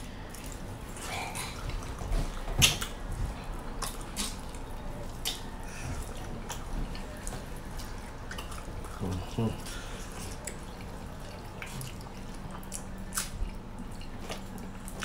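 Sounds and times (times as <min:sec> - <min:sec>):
wet chewing and lip-smacking: 0:00.0 - 0:15.0.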